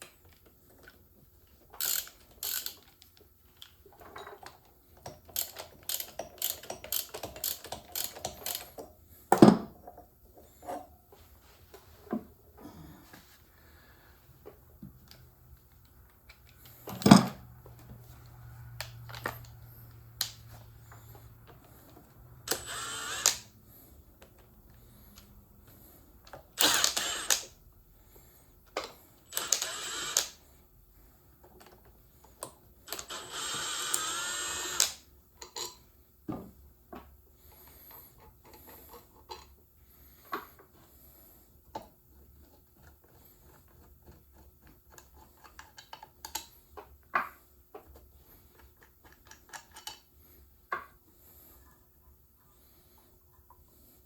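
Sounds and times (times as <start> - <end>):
tools and metal parts clicking: 1.7 - 8.8, 48.6 - 50.0
power driver bursts: 22.5 - 23.5, 26.6 - 27.5, 29.3 - 30.4, 32.9 - 35.0.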